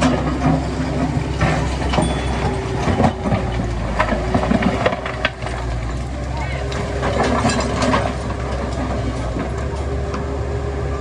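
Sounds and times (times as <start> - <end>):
metallic clanks and knocks: 0.0 - 5.8, 6.6 - 9.6
diesel machinery running: 0.0 - 11.0.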